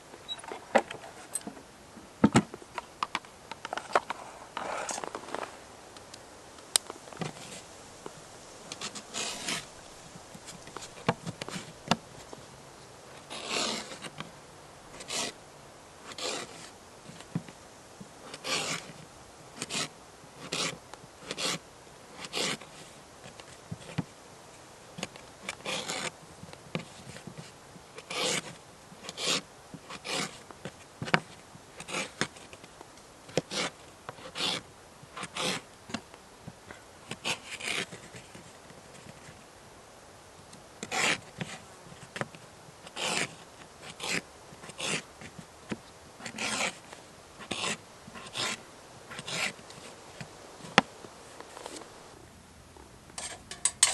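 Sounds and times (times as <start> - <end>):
short rasping scrapes: 8.8 - 9.7, 13.3 - 14.1, 16.1 - 16.7, 18.4 - 18.9, 43.0 - 43.3, 46.2 - 46.8, 47.5 - 49.6.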